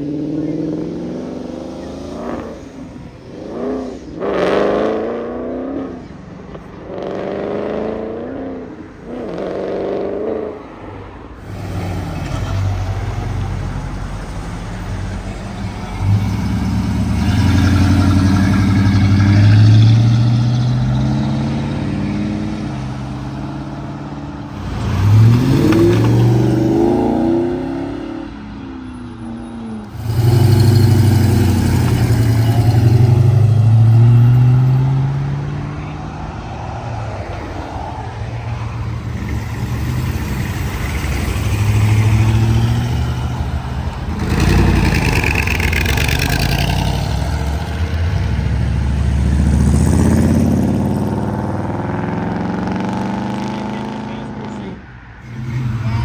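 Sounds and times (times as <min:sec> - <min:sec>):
car engines revving: 0:00.0 - 0:56.0
car accelerating through gears: 0:11.4 - 0:28.4, 0:29.9 - 0:56.0.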